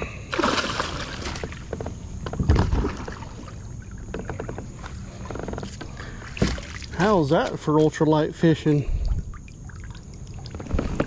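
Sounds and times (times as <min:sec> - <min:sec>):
handling noises in kayak: 0:00.0 - 0:07.9, 0:10.5 - 0:11.0.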